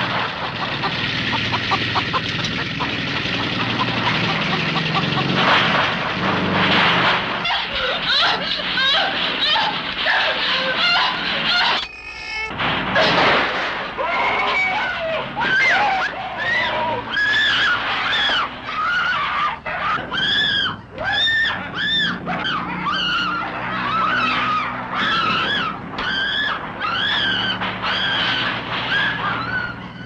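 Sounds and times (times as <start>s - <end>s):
woman screaming: 7.4s - 11.8s.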